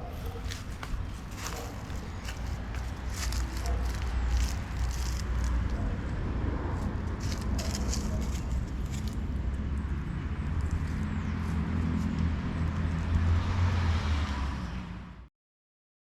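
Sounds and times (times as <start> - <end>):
motorcycle engine rumbling: 0.0 - 11.8.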